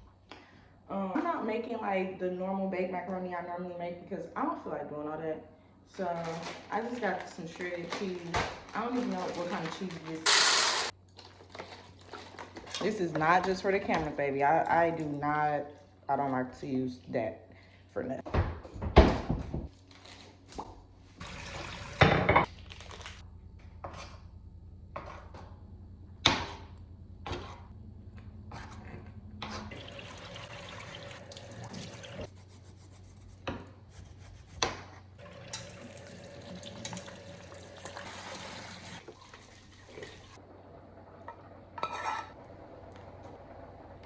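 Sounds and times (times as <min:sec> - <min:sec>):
low steady hum: 0:00.0 - 0:38.0
water running from faucet: 0:10.3 - 0:10.9, 0:21.2 - 0:22.2, 0:29.7 - 0:32.3, 0:35.2 - 0:40.4
pots and dishes clinking: 0:41.8 - 0:42.4.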